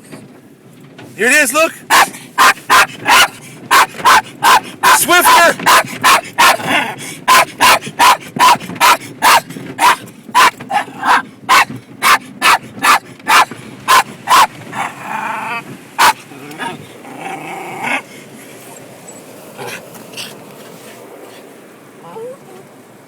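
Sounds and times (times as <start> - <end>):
dog barking: 1.9 - 16.8, 19.6 - 20.4
dog whining: 1.9 - 20.4, 22.0 - 22.6.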